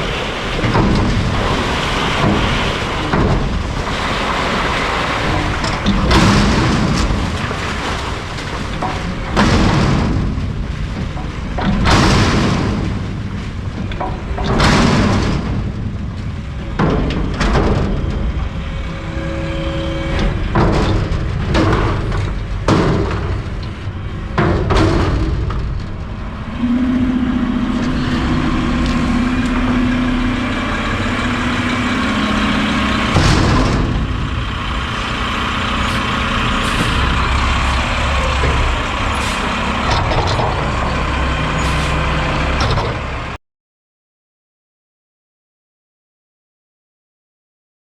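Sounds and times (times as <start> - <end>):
heavy thumps of container dumping: 0.0 - 18.8, 20.1 - 26.7, 27.6 - 43.0
garbage truck diesel engine: 0.0 - 43.4
steady hum: 15.5 - 42.1.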